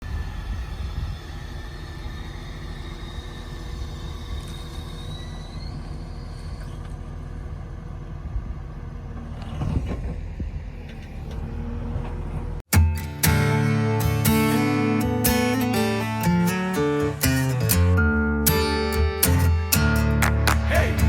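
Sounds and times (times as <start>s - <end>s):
faint high whine: 0.0s - 7.0s
diesel engine rumbling: 0.0s - 21.0s.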